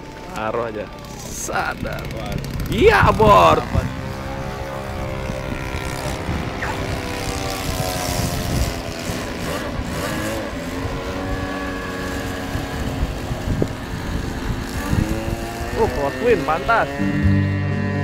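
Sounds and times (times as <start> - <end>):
model airplane engines: 0.0 - 18.0.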